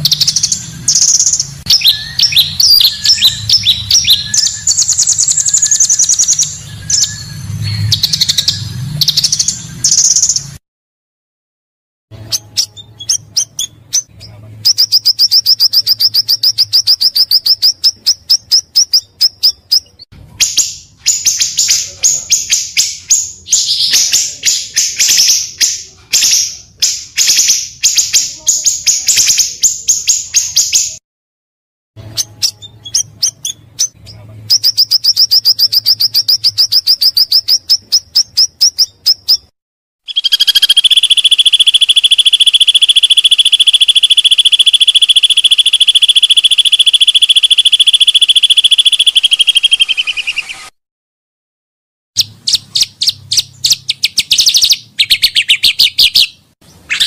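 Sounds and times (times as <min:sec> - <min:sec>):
bird chirping rapidly: 0:00.0 - 0:10.6, 0:12.2 - 0:31.0, 0:32.0 - 0:39.5, 0:40.1 - 0:50.8, 0:52.2 - 0:57.0
high insect-like trill: 0:40.1 - 0:49.8.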